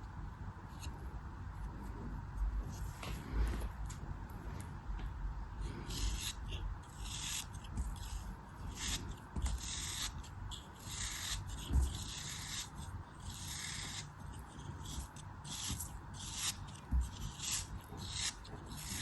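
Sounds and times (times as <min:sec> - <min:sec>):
tool scraping crumbly material: 0:05.6 - 0:19.0.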